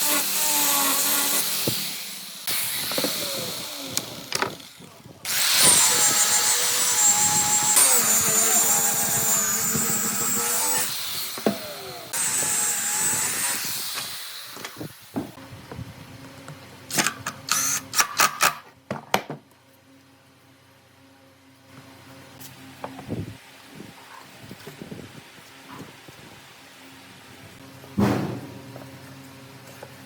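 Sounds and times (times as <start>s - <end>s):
electric power tool whining: 0.0s - 14.8s, 16.9s - 18.4s.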